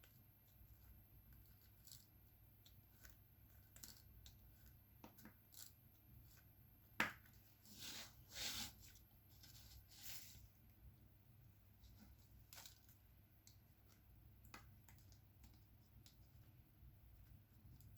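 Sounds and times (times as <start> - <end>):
small clicks and taps: 12.6 - 16.6.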